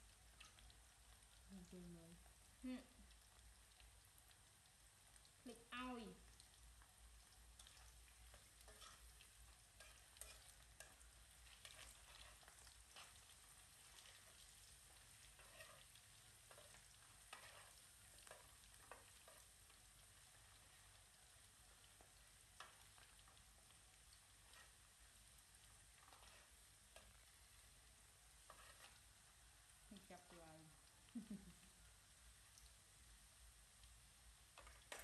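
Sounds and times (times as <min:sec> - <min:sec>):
potatoes sizzling in oil: 0:00.0 - 0:35.0
metal tongs clicking on pan: 0:09.8 - 0:11.0, 0:34.6 - 0:35.0.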